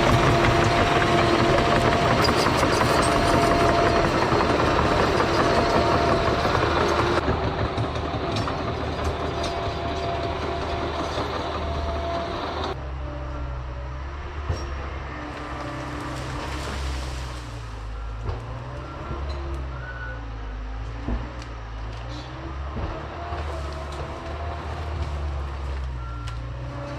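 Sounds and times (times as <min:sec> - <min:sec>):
clanking tracks: 0:00.0 - 0:13.4
diesel engine running: 0:00.0 - 0:26.9.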